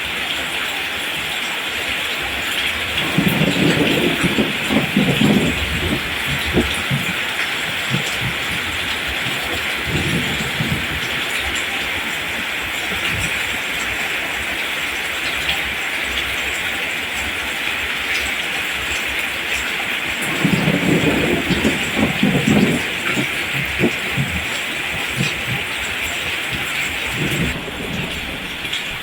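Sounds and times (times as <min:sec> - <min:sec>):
heavy rain hissing: 0:00.0 - 0:29.0
low rumble of thunder: 0:02.2 - 0:29.0.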